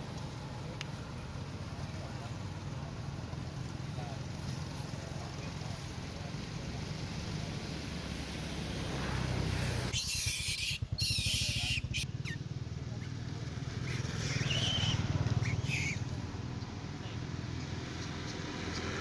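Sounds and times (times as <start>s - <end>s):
monkey squeaks: 9.9s - 12.4s, 13.9s - 16.0s.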